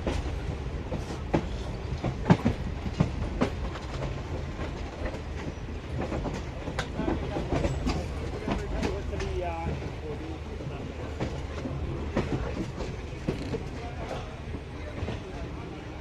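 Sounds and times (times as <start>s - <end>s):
train coach rumbling: 0.0s - 16.0s.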